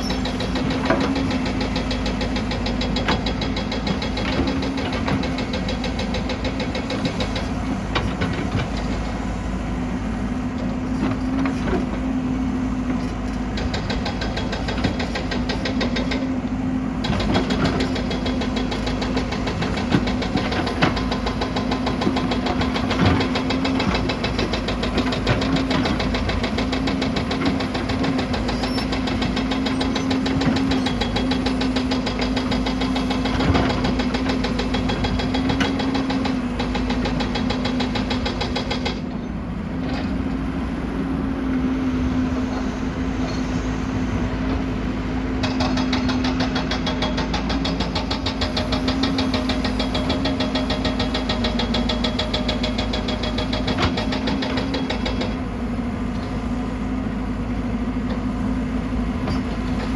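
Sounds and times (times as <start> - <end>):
machine knocks and clanks: 0.0 - 9.6, 12.7 - 39.2, 44.4 - 55.6
excavator diesel engine running: 0.0 - 59.9.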